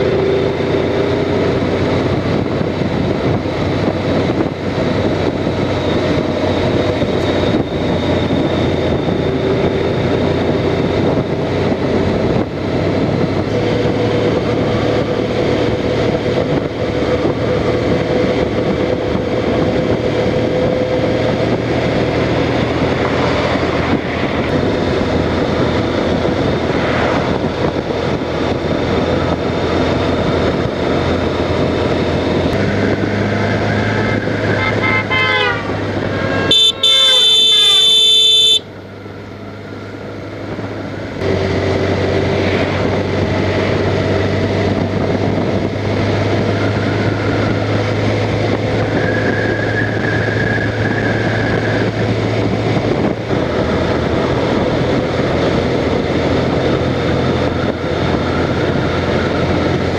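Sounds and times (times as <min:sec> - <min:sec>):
motorcycle engine running: 0:00.0 - 0:59.9
wind noise: 0:00.0 - 0:59.9
loud horn blast: 0:33.8 - 0:38.7.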